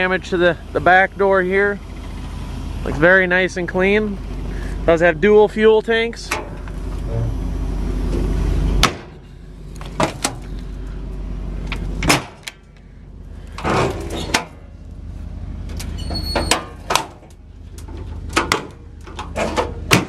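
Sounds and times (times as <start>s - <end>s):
metal latches clicking and clunking: 15.7s - 20.0s.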